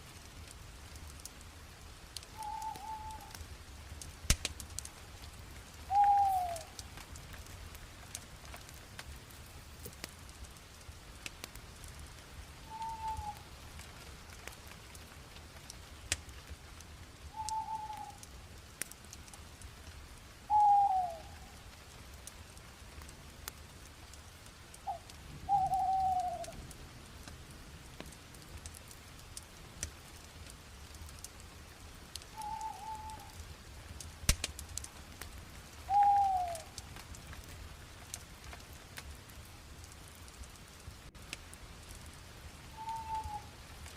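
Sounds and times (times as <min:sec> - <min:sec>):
wood fire crackling: 0:00.0 - 0:43.9
bird falling call: 0:05.9 - 0:06.7, 0:24.9 - 0:26.5, 0:35.9 - 0:36.7, 0:42.8 - 0:43.5.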